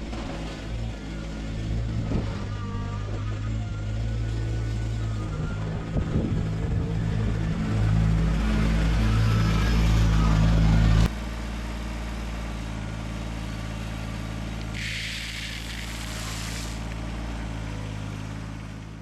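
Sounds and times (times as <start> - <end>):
tractor diesel engine running: 0.0 - 19.0
brief hiss: 14.6 - 17.0.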